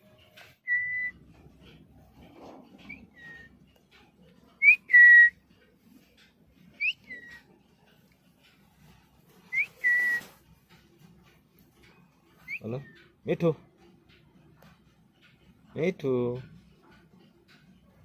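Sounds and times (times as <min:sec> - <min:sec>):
parrot whistling: 0:00.6 - 0:01.2, 0:02.9 - 0:03.5, 0:04.6 - 0:05.3, 0:06.8 - 0:07.4, 0:09.5 - 0:10.2, 0:12.4 - 0:13.0.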